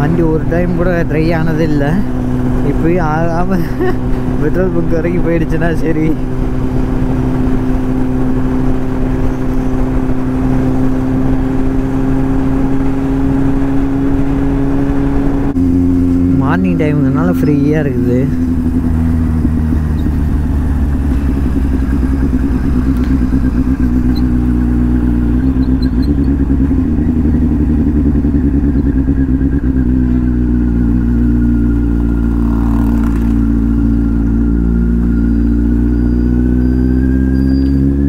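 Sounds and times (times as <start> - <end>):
motorcycle engine cruising: 0.0 - 38.0.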